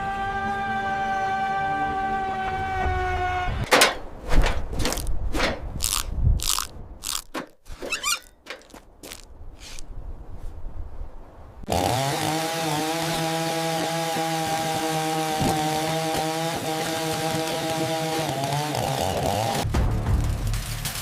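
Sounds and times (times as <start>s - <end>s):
sharp crunching clicks: 4.8s - 9.9s.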